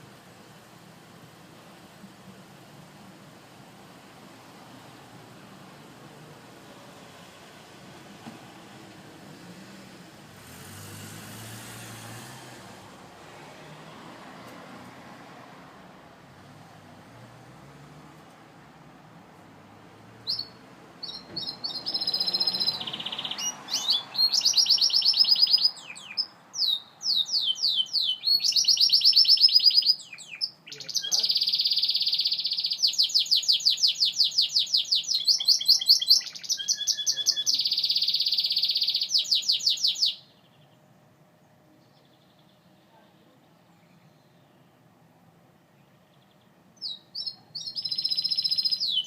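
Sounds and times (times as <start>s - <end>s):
canary singing trills: 20.2s - 40.8s, 45.8s - 49.0s.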